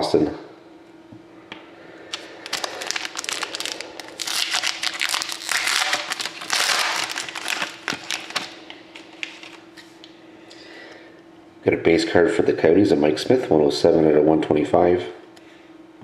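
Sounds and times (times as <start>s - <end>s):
plastic crinkling and rustling: 2.1s - 10.0s.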